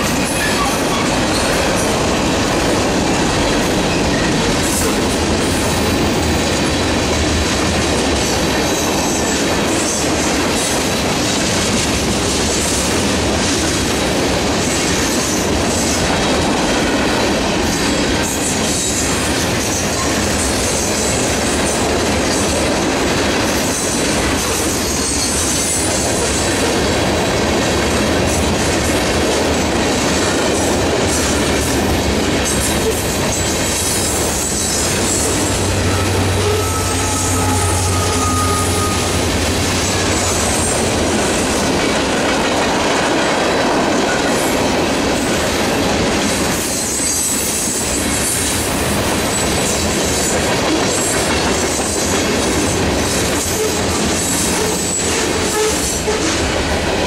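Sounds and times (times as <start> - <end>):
steel wheels rumbling on rails: 0.0 - 57.0.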